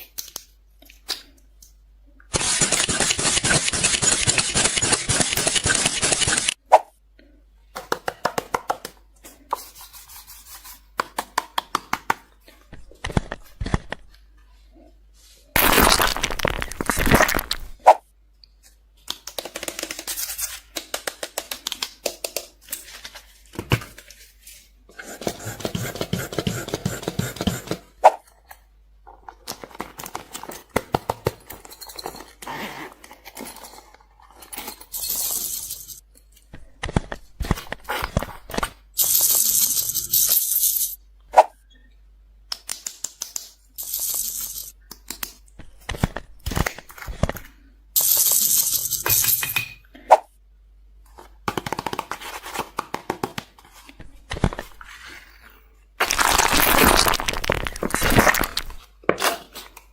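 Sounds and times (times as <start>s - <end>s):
crinkling and rustling: 15.6s - 17.8s, 28.3s - 38.8s, 56.0s - 59.9s.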